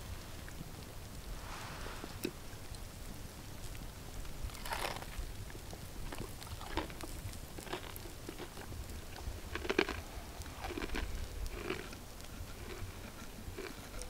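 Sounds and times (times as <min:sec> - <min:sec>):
chewing crunchy fried chicken: 0:03.6 - 0:14.0.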